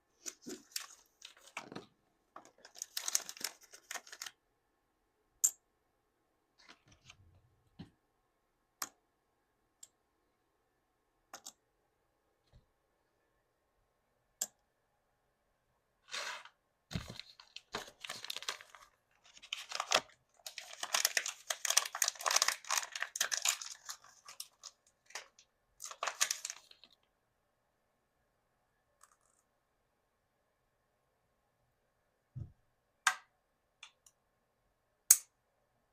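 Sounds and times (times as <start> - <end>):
plastic packaging tearing and crinkling: 2.5 - 4.3, 17.0 - 26.9.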